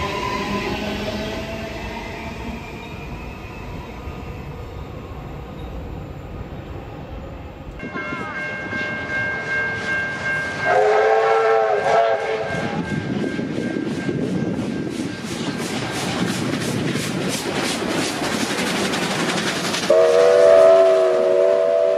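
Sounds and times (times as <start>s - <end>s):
multi-tone train horn: 7.8s - 13.1s, 19.9s - 21.9s
wheels clicking over rail joints: 14.1s - 20.2s.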